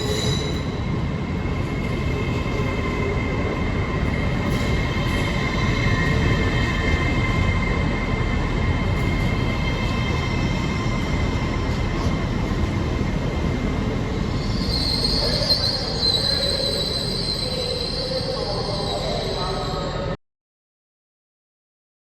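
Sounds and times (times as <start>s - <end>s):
high-pitched wheel squeal: 0.0s - 0.9s, 14.2s - 20.1s
train rumbling: 0.0s - 20.2s.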